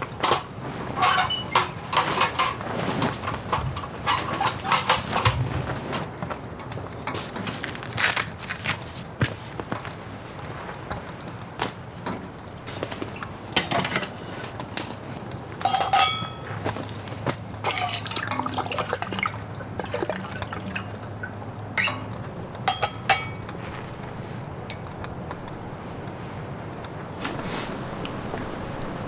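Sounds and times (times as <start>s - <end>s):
liquid pouring and dripping: 9.8s - 27.4s
cookware clinking: 15.6s - 16.8s, 17.6s - 19.4s, 21.8s - 23.6s.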